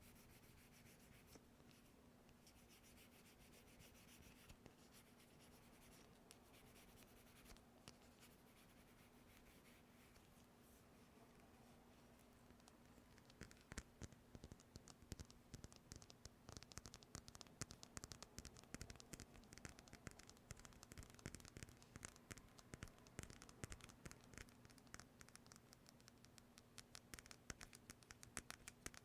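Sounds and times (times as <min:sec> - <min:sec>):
rapid tapping and scratching clicks: 0:12.6 - 0:29.0.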